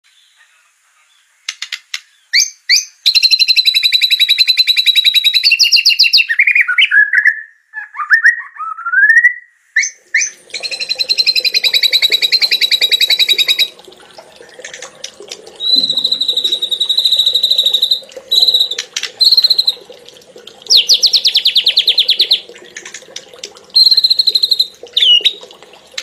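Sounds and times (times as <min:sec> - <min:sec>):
bird song: 0:00.0 - 0:13.8, 0:15.6 - 0:19.9, 0:20.7 - 0:22.5, 0:23.8 - 0:25.4
rising bird whistles: 0:02.4 - 0:13.7, 0:15.6 - 0:19.9, 0:23.8 - 0:25.4.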